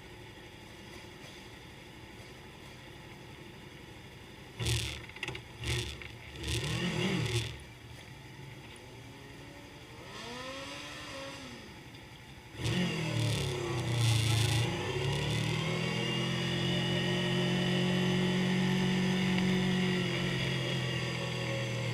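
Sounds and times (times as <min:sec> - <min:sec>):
loud engine: 0:04.6 - 0:07.7, 0:09.8 - 0:11.8, 0:12.6 - 0:21.9
motorcycle engines revving: 0:04.6 - 0:07.8, 0:09.3 - 0:11.9, 0:12.5 - 0:21.9
motorcycle passing by: 0:09.4 - 0:11.7, 0:12.6 - 0:21.9.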